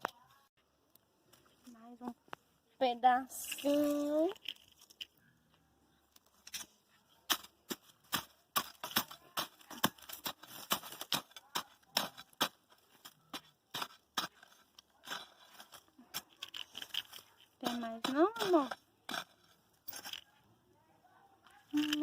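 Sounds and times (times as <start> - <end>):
wood bonfire crackling: 7.3 - 20.4.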